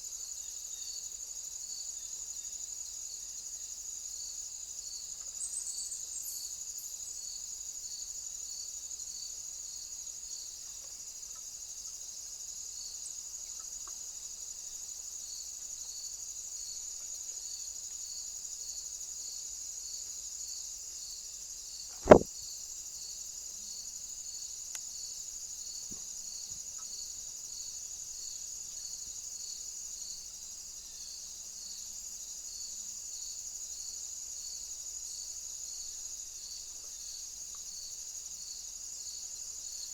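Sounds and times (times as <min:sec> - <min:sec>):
crickets chirping: 0:00.0 - 0:39.9
sharp knock: 0:22.0 - 0:22.3.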